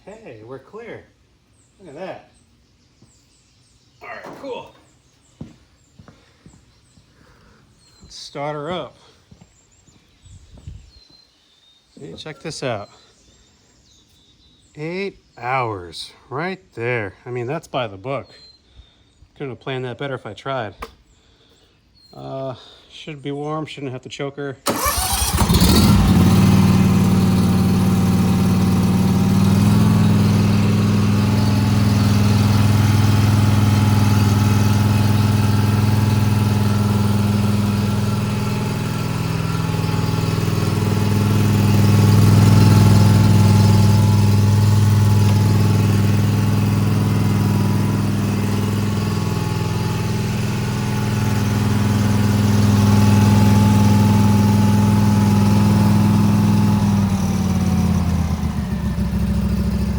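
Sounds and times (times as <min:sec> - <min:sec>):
mower engine running: 0:24.7 - 0:59.9.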